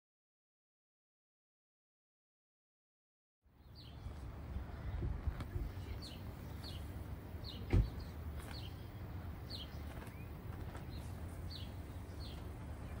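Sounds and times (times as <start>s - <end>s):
small bird chirping: 5.6s - 13.0s
dull thump: 7.6s - 8.0s.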